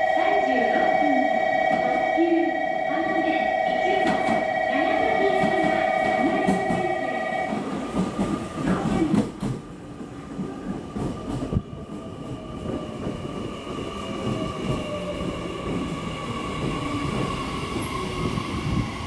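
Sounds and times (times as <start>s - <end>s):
steady whining tones: 0.0s - 8.3s
train wheels rumbling on rail: 3.6s - 19.0s.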